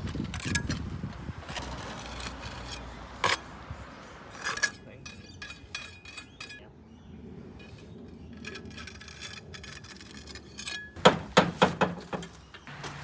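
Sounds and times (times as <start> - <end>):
loud knocks: 11.0 - 12.4.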